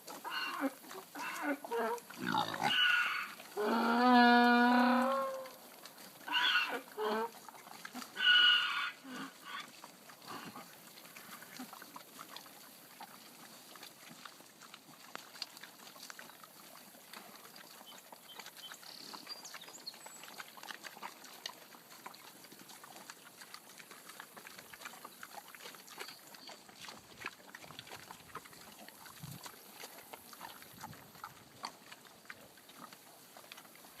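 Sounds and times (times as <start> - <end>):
pigs grunting and squealing: 0.1 - 19.2.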